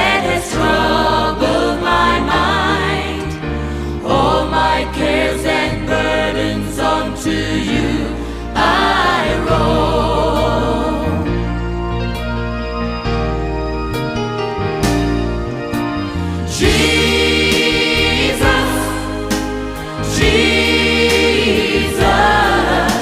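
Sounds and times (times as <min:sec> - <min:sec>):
choir singing: 0:00.0 - 0:11.6, 0:16.4 - 0:23.0
keyboard and bass accompaniment: 0:00.0 - 0:23.0.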